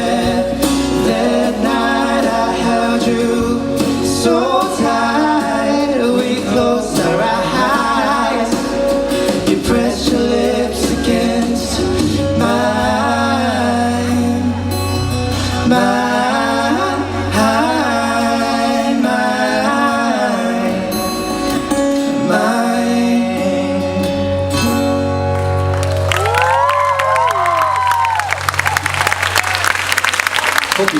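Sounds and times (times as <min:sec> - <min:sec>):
person singing lead vocal: 0:00.0 - 0:25.1
live band playing: 0:00.0 - 0:30.9.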